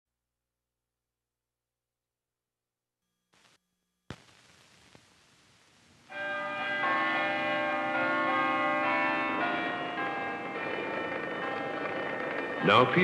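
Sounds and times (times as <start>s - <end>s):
faint film hiss: 3.4s - 6.1s
church bells ringing: 6.1s - 13.0s.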